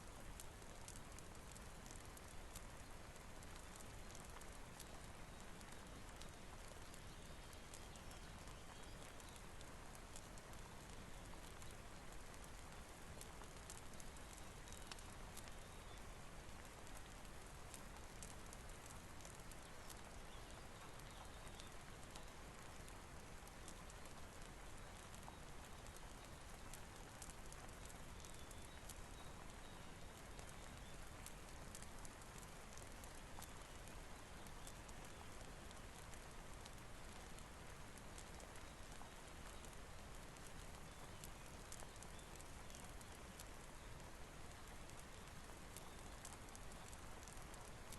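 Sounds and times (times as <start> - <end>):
rain hiss: 0.0 - 47.9
wood fire crackling: 0.0 - 47.9.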